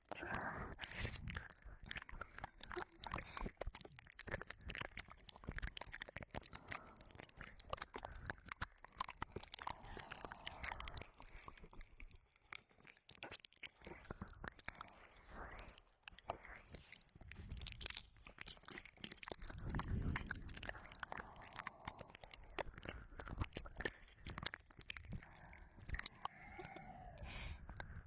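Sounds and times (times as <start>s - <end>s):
wet tongue licks: 0.0s - 28.0s
lip smacks and clicks: 0.1s - 28.0s
soft breathy noise: 25.0s - 28.0s.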